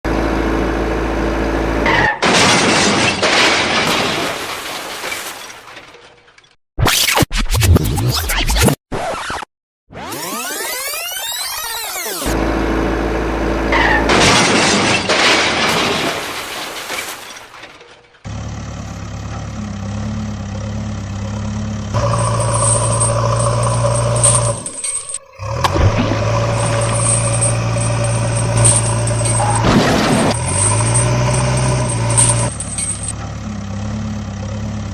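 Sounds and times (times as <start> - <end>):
truck engine running: 0.1 - 2.2, 12.2 - 15.2, 18.1 - 34.9
glass breaking and shattering: 2.2 - 6.5, 14.1 - 17.9, 22.0 - 33.2.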